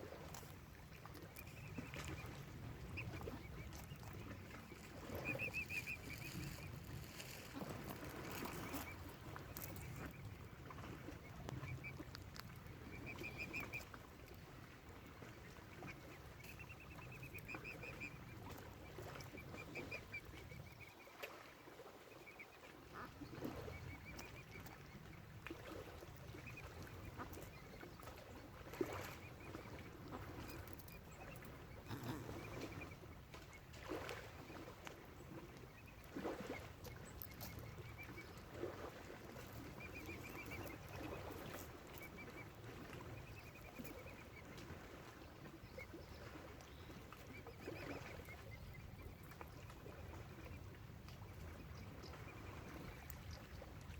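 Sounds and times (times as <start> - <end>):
waterfowl calling: 1.4 - 10.2, 12.8 - 14.1, 25.6 - 34.7, 35.3 - 49.1.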